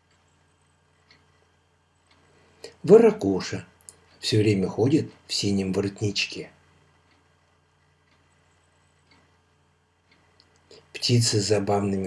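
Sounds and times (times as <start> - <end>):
very faint ticks: 0.0 - 2.8, 6.7 - 11.0
low steady hum: 0.0 - 12.0.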